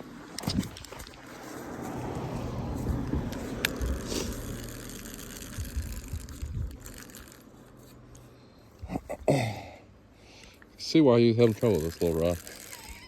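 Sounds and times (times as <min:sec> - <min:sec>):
car driving past: 0:01.2 - 0:05.6.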